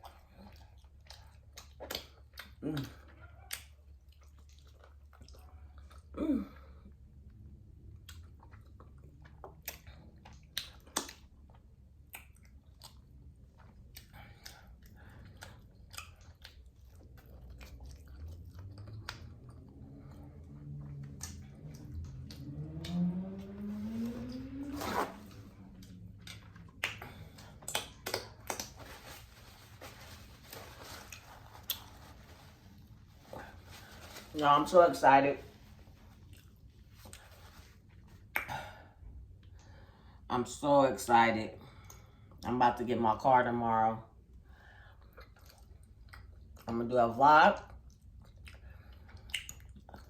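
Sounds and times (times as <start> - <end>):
wet lip smacks and mouth clicks: 0.0 - 6.1, 7.8 - 23.0, 25.8 - 28.9, 38.2 - 38.6, 45.0 - 46.7, 47.7 - 50.0
chewing: 0.0 - 6.2, 6.8 - 24.6, 25.3 - 34.2, 36.2 - 38.5, 44.8 - 46.7, 47.6 - 50.0
steady low hum: 11.3 - 40.4
sharp wet clicks: 25.8 - 28.8, 47.9 - 50.0.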